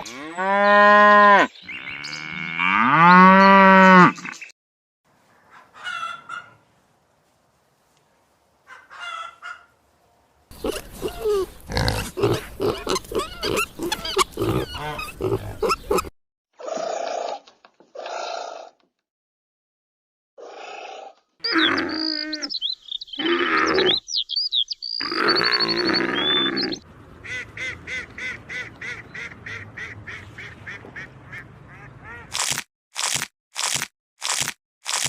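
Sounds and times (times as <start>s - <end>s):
farm animal calls: 10.5s - 16.1s, 21.4s - 32.3s.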